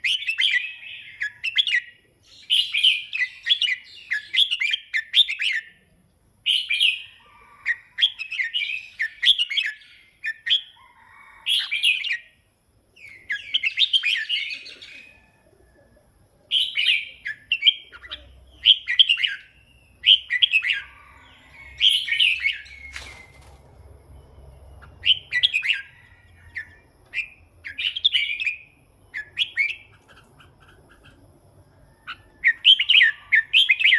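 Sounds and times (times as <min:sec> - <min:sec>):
bird warbling song: 0:13.0 - 0:15.8, 0:16.5 - 0:33.9.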